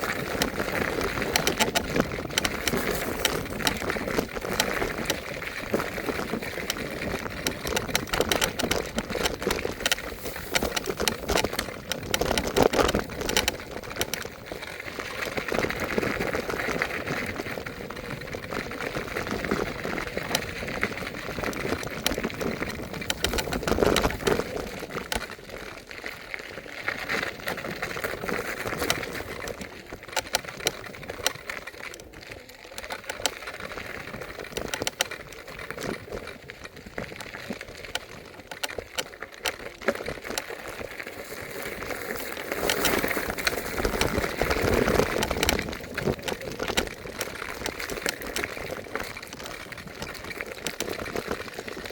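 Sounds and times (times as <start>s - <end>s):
scooter frame rattling: 0.0s - 51.9s
scooter rolling noise: 0.0s - 51.9s.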